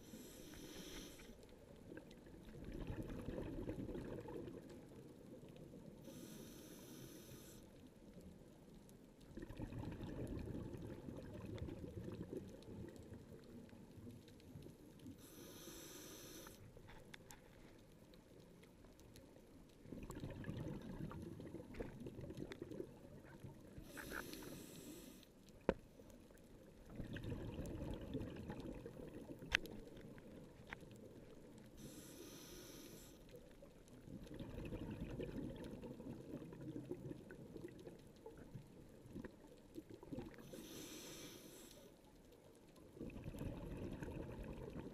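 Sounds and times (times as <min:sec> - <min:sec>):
regulator inhalation hiss: 0:00.0 - 0:01.4, 0:06.1 - 0:07.6, 0:15.2 - 0:16.7, 0:23.8 - 0:25.2, 0:31.8 - 0:33.2, 0:40.5 - 0:41.9
exhaled bubbles rumbling: 0:01.8 - 0:05.9, 0:09.2 - 0:14.6, 0:19.8 - 0:24.0, 0:26.7 - 0:30.6, 0:33.9 - 0:40.5, 0:42.8 - 0:44.9.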